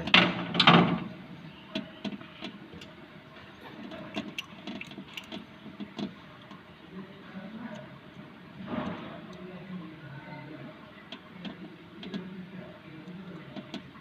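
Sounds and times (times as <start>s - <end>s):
light clicks and taps: 11.1s - 12.3s.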